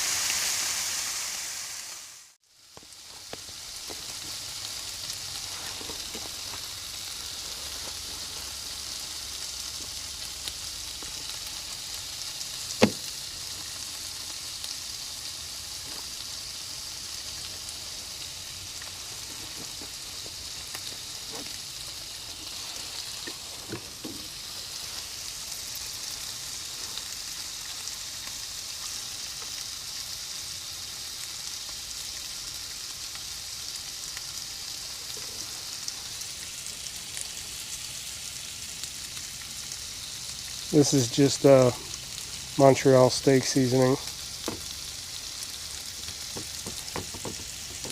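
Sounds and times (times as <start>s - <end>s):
bacon sizzling in a frying pan: 0.0s - 47.9s
sharp knock: 12.8s - 13.1s.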